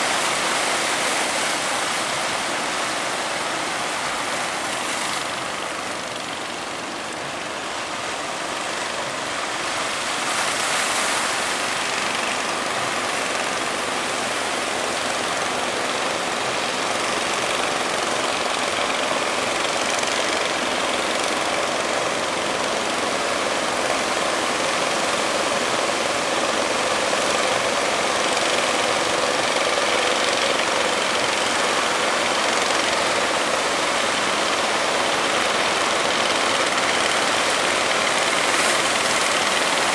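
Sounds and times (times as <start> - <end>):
outboard motors running: 0.0 - 39.9
surf breaking: 33.4 - 39.9.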